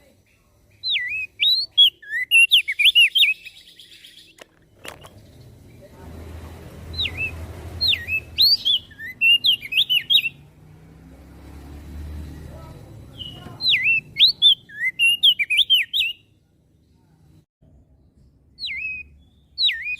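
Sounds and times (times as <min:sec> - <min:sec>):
bird whistling song: 0:00.7 - 0:05.5, 0:06.9 - 0:10.5, 0:13.1 - 0:16.3, 0:18.6 - 0:19.9
sharp clicks: 0:04.3 - 0:05.2.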